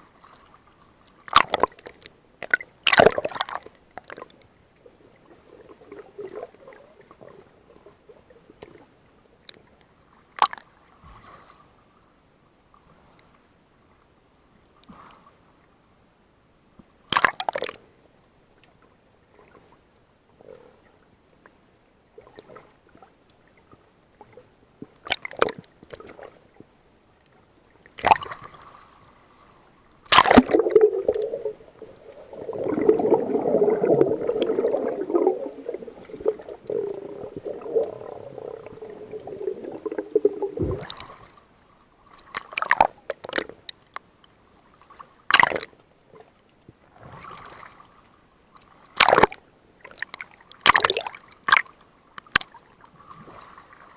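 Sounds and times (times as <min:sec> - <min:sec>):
water sloshing and gurgling: 0:00.0 - 0:11.8, 0:18.7 - 0:53.9
sharp knocks or splashes: 0:30.1 - 0:31.6, 0:39.8 - 0:41.1.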